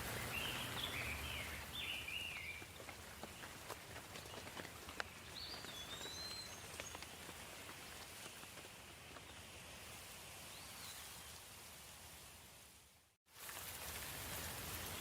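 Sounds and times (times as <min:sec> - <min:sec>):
light rain falling: 0:00.0 - 0:15.0
bird chirping: 0:00.1 - 0:03.5, 0:04.2 - 0:07.2.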